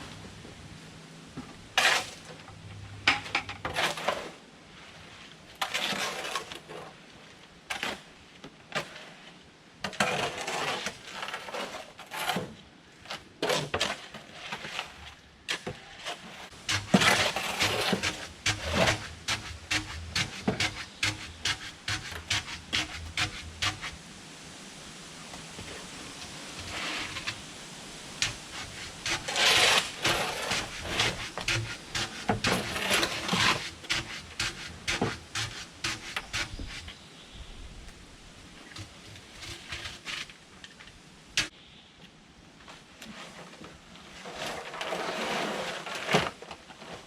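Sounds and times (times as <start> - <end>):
knocks and clatters: 16.5 - 24.0, 28.2 - 36.8.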